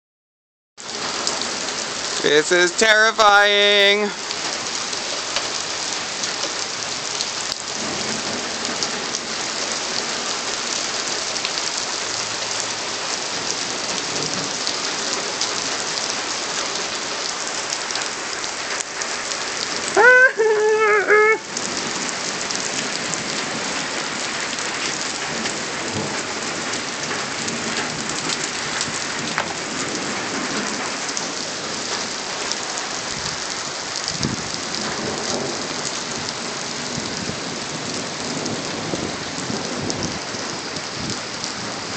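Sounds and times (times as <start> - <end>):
heavy rain: 0.8 - 41.9
wavering high-pitched cry: 20.0 - 21.5.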